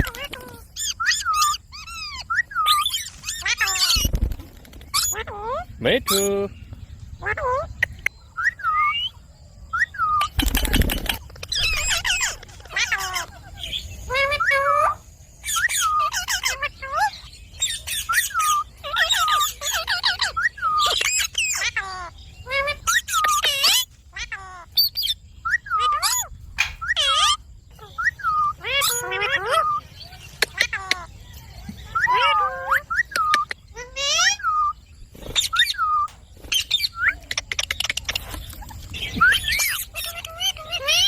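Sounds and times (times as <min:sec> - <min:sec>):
parakeet chirping and squawking: 0:00.0 - 0:08.1, 0:10.0 - 0:41.0
parakeet clicks: 0:26.6 - 0:27.3.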